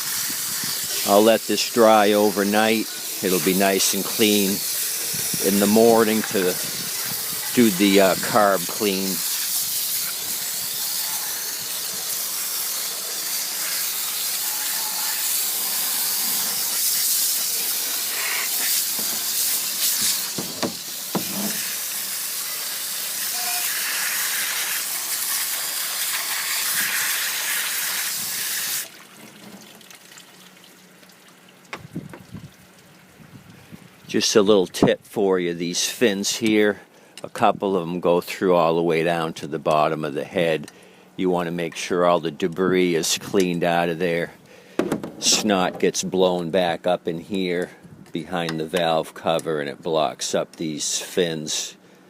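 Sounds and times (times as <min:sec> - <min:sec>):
hose nozzle spraying water: 0:00.0 - 0:30.6.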